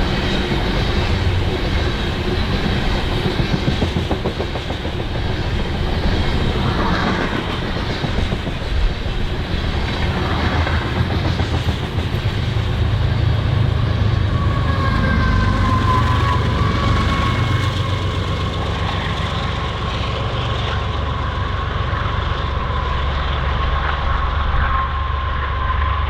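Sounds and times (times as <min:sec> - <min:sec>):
wheels clickety-clack: 0:00.0 - 0:24.7
freight train rumble: 0:00.0 - 0:26.0
high wavering squeal: 0:13.5 - 0:19.2.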